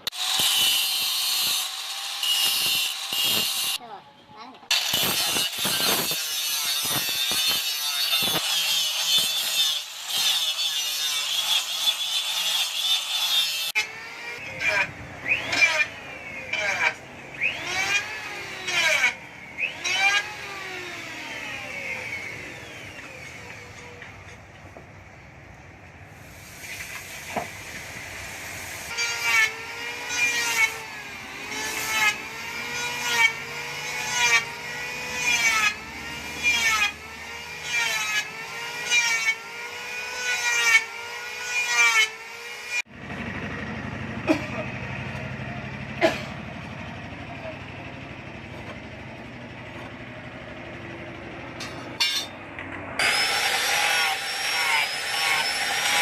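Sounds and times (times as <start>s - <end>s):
hand-driven spinning tool whine: 53.0s - 56.0s.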